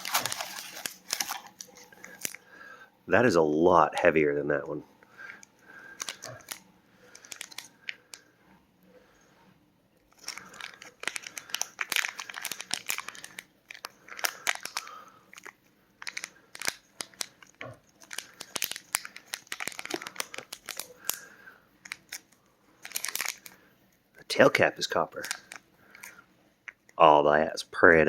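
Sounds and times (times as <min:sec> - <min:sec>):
packaging crinkling and rustling: 0:00.0 - 0:02.4, 0:05.2 - 0:08.2, 0:10.1 - 0:23.6, 0:24.4 - 0:26.9.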